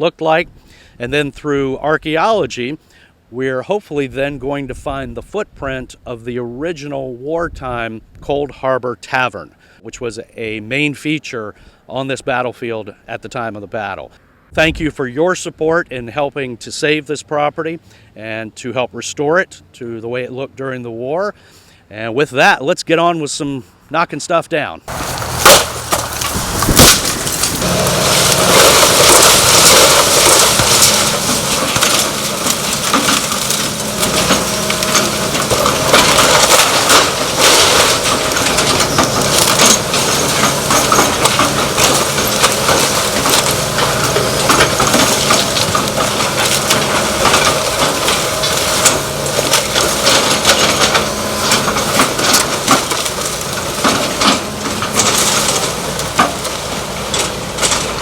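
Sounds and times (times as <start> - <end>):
machine engine running: 24.9 - 58.0
timber crushing and splintering: 24.9 - 58.0.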